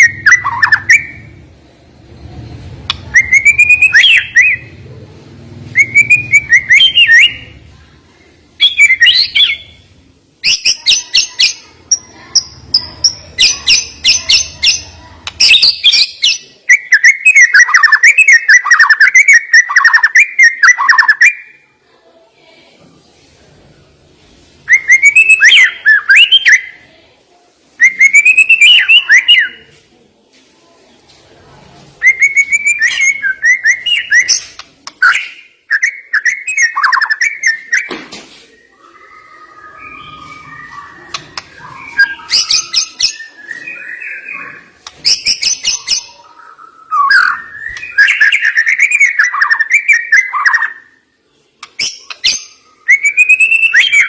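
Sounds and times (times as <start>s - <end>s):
songbird singing: 2.2s - 4.8s, 5.8s - 7.6s, 32.0s - 37.9s, 38.5s - 54.0s.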